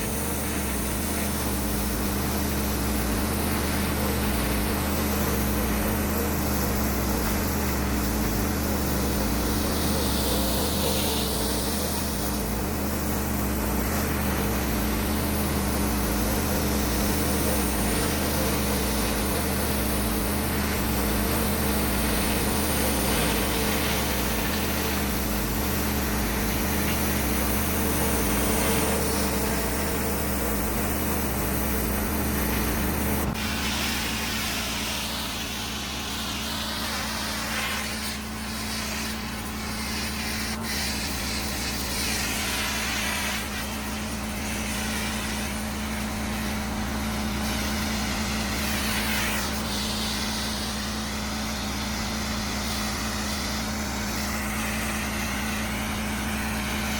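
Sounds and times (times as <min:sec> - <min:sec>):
pressure washer engine running: 0:00.0 - 0:56.9
water jet spraying on concrete: 0:00.0 - 0:56.9.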